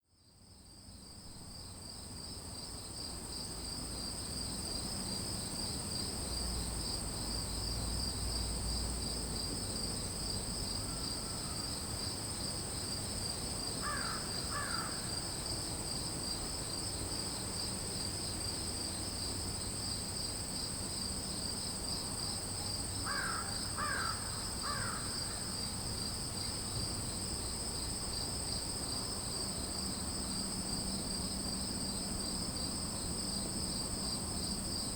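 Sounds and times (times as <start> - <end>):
crickets trilling: 0.6 - 34.9
crow cawing: 13.8 - 15.0, 23.0 - 25.1.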